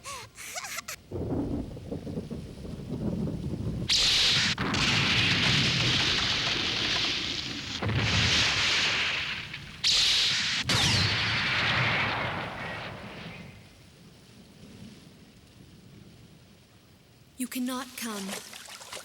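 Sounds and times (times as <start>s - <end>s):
rushing rain and wind: 0.0s - 19.0s
low rumbling thunder: 1.0s - 10.0s, 10.6s - 13.8s.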